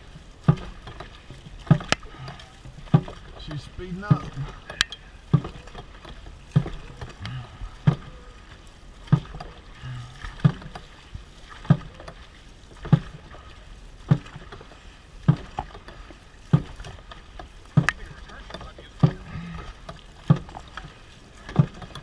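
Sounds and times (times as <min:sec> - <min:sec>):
paddles in water: 0:00.0 - 0:22.0
drum beating steadily: 0:17.7 - 0:19.7.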